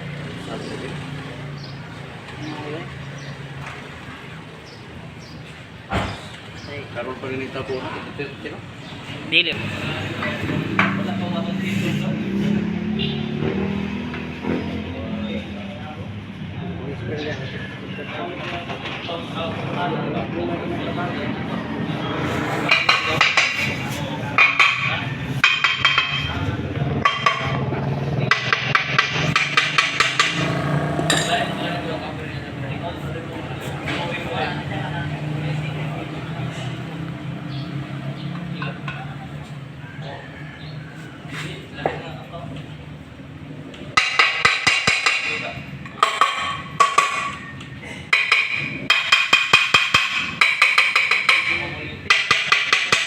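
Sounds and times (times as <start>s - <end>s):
hand tools clinking on engine parts: 22.6s - 27.6s, 28.2s - 31.7s, 44.0s - 53.0s
music with wood-block beat: 22.6s - 31.6s, 44.0s - 53.0s.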